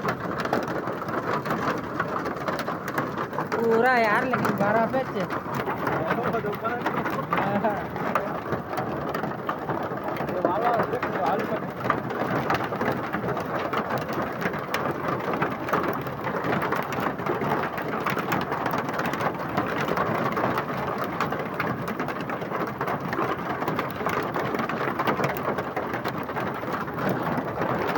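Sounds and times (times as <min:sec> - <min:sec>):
hailstones clicking: 0:00.0 - 0:27.9
heavy rain pelting: 0:00.0 - 0:27.9.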